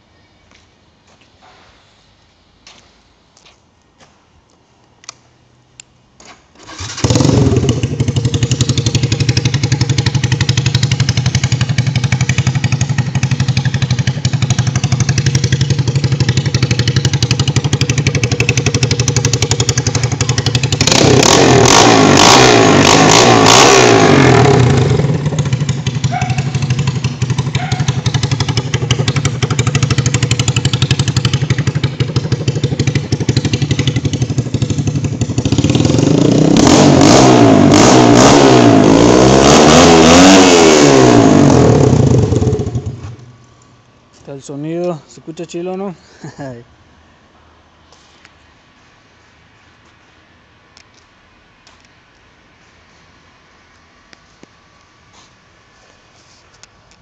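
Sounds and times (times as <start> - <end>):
motorcycle engine starting: 6.2 - 43.4
motorcycle engine revving: 6.6 - 43.4
motorcycle idling loudly: 7.1 - 21.0, 24.5 - 36.1.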